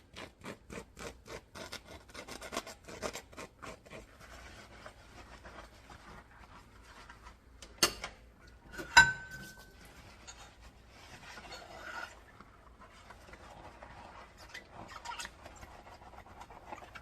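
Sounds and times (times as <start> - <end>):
dishes rubbing and rustling: 4.2 - 17.0
dishware clinking: 8.7 - 10.6.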